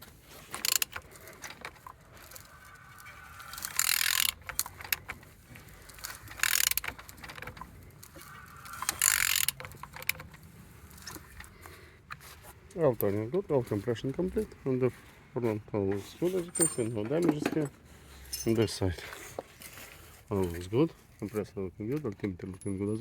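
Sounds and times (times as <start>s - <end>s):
mechanical creaks: 0.0s - 11.6s
ratchet clicks: 0.5s - 11.2s.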